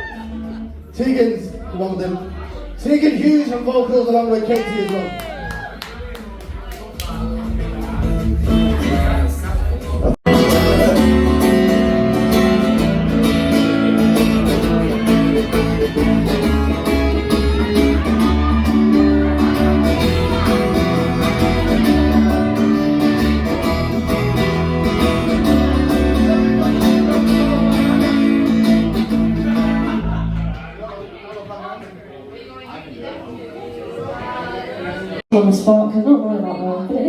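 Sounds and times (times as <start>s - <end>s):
bass guitar: 5.7s - 30.8s
steady drum beat: 5.9s - 26.1s
live band playing: 6.0s - 30.4s
electric guitar: 10.2s - 30.6s.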